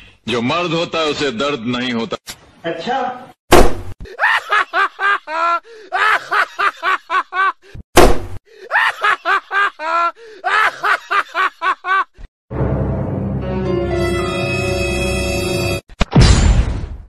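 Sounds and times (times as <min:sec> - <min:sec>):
rapid rhythmic laughter: 0:04.0 - 0:07.8, 0:08.6 - 0:12.3.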